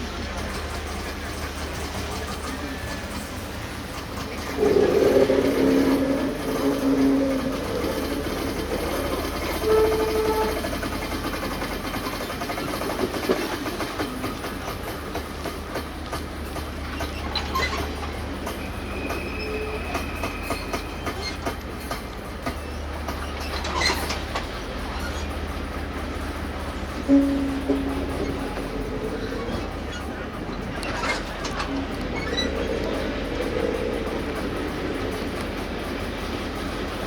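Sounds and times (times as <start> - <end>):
low train rumble: 0.0 - 37.0
train wheels clicking over rail joints: 0.0 - 37.0.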